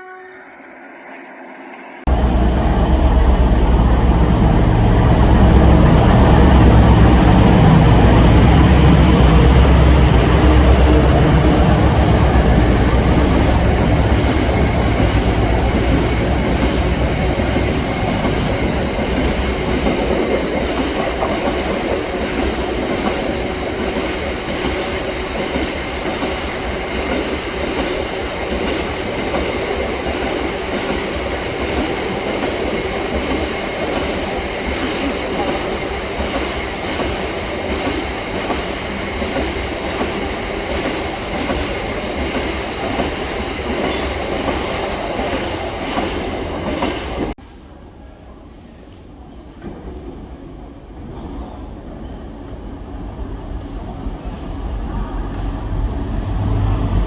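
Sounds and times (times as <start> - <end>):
diesel locomotive engine rumble: 2.1 - 47.4
train wheels clacking over rail joints: 2.1 - 47.4.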